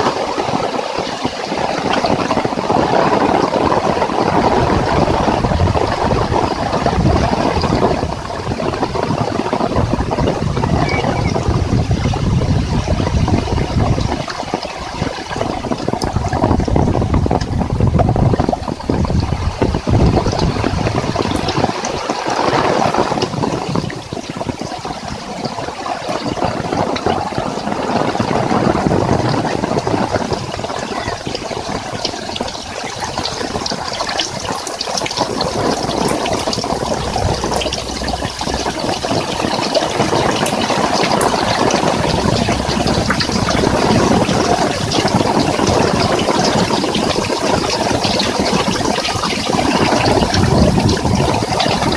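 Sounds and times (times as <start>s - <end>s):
heavy rain pouring: 0.0s - 51.9s
low wind rumble: 0.0s - 51.9s.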